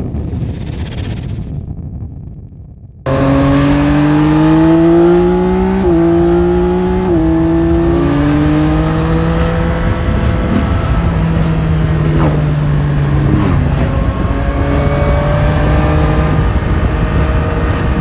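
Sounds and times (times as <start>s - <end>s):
motorcycle engine accelerating: 3.1s - 18.0s.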